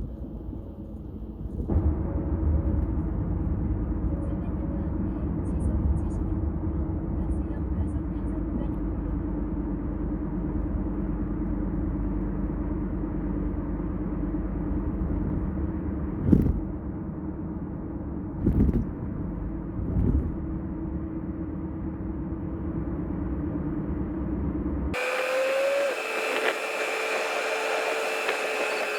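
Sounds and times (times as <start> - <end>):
road and engine drone: 0.0 - 28.9.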